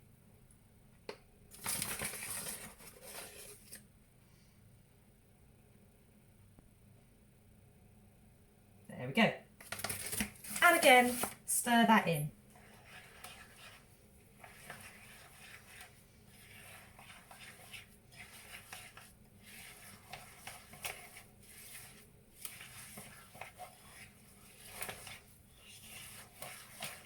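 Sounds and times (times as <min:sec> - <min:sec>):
spoon scraping in a bowl: 0:12.6 - 0:27.0.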